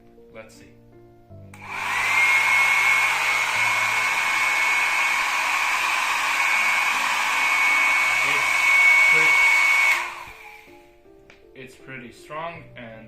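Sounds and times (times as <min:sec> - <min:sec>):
hair dryer blowing air: 0:01.5 - 0:11.0.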